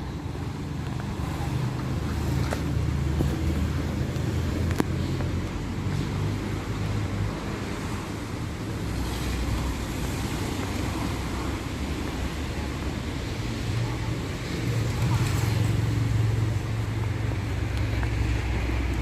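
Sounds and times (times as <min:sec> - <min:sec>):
passing car engines: 0:00.0 - 0:19.0
road noise hiss: 0:00.0 - 0:19.0.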